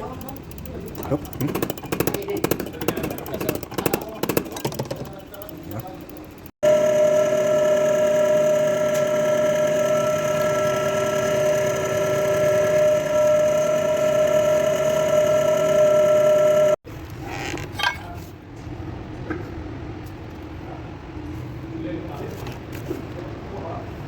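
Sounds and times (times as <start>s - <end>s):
diesel engine running: 0.0s - 16.8s
high-pitched whine: 6.6s - 16.8s.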